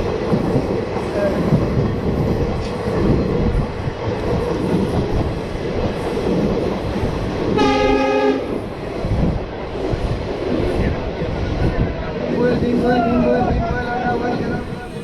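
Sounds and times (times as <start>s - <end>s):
train rumble and rattle: 0.0s - 15.0s
train horn: 7.6s - 8.5s.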